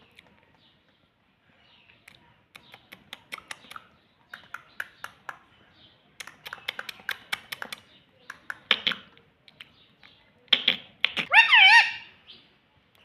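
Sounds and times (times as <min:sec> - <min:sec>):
parrot clicking: 0:02.5 - 0:05.4, 0:06.2 - 0:09.8.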